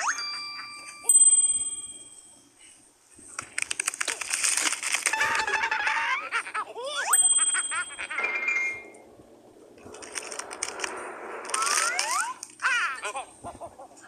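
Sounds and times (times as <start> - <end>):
bell-like ding: 5.1 - 6.4.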